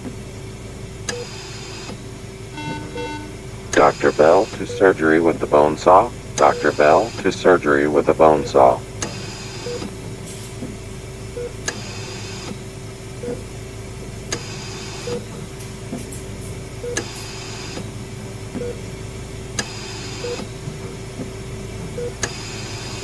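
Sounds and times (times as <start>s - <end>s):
steady hum: 2.2s - 10.1s
short beeps: 2.6s - 8.8s
steady tone: 2.6s - 8.9s.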